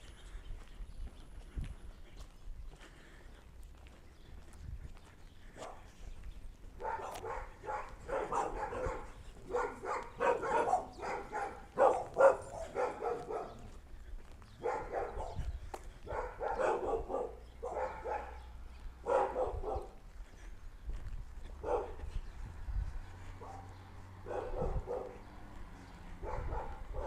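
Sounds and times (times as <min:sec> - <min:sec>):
dog barking: 0:05.6 - 0:06.0, 0:06.8 - 0:13.8, 0:14.6 - 0:20.0, 0:21.6 - 0:22.1, 0:23.4 - 0:25.3, 0:26.1 - 0:27.0.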